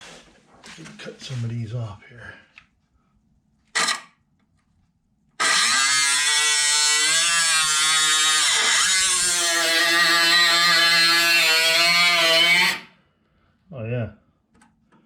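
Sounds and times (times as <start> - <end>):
cutoff tool cutting sheet metal: 5.4 - 12.9.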